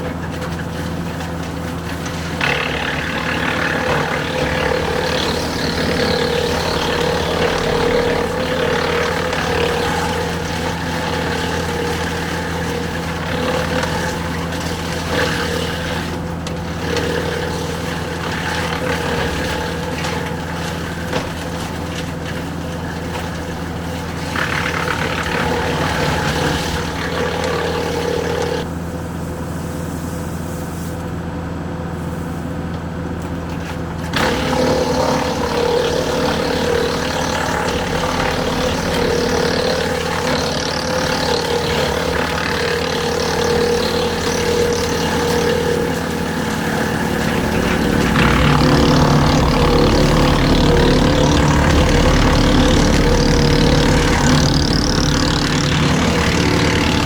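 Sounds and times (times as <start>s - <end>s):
tractor engine drone: 0.0s - 57.0s
wood chipper grinding: 0.0s - 57.0s.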